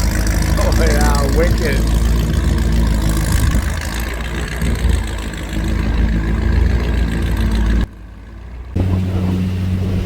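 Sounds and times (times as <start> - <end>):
motorboat engine running: 0.0 - 10.0
wind noise on microphone: 2.1 - 5.4.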